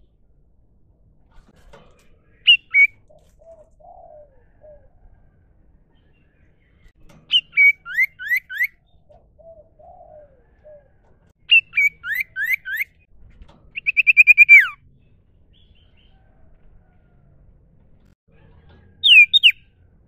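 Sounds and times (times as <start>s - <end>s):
bird singing whistles and trill: 2.5s - 3.0s, 7.3s - 8.8s, 11.5s - 13.0s, 13.8s - 14.8s, 19.0s - 19.7s.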